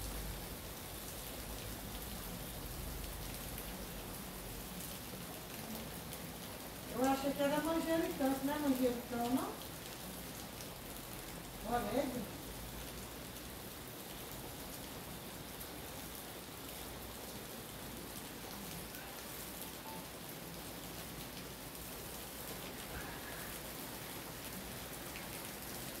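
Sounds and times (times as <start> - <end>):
rain falling on leaves: 0.0 - 26.0.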